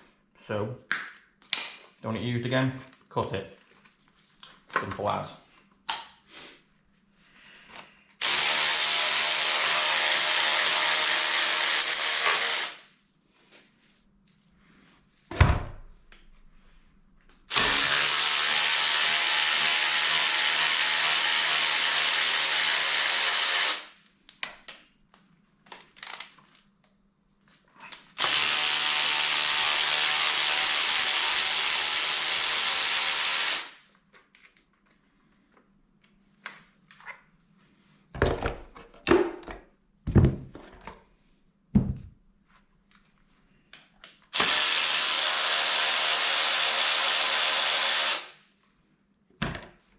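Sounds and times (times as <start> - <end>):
power tool running: 8.2 - 12.8, 17.5 - 23.9, 28.2 - 33.8, 44.4 - 48.3.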